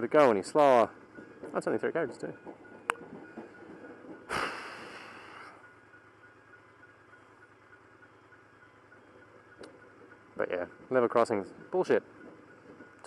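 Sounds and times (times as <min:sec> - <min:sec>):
man sighing heavily: 0:04.3 - 0:05.5.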